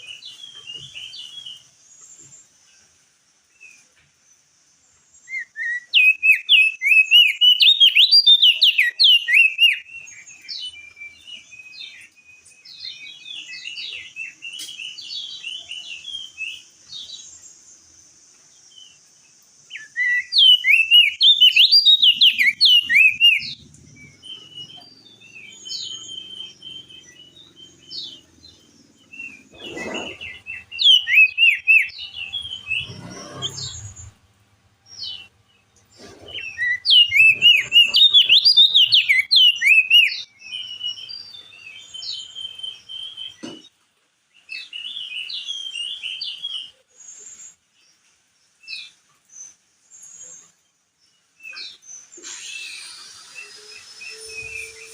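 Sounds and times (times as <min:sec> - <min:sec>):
bird chattering song: 0:05.2 - 0:17.7, 0:19.7 - 0:34.2, 0:34.9 - 0:43.7.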